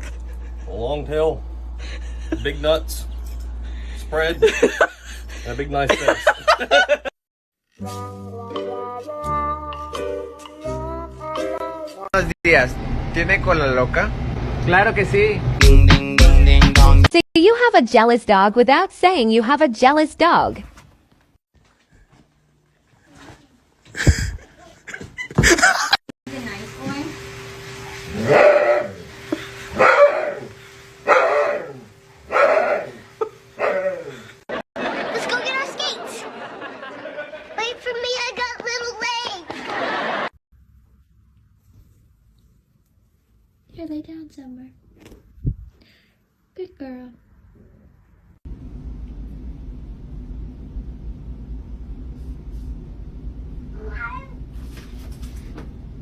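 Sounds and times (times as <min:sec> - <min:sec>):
dog barking: 0:28.2 - 0:29.0, 0:29.7 - 0:34.2
steady low rumble: 0:47.4 - 0:53.8.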